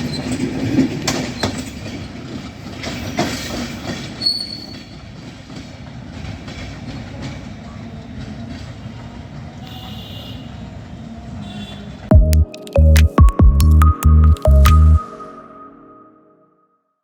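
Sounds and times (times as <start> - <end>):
train wheel squeal: 0.0 - 2.1, 2.7 - 10.1
wheels clacking over rail joints: 0.0 - 9.6.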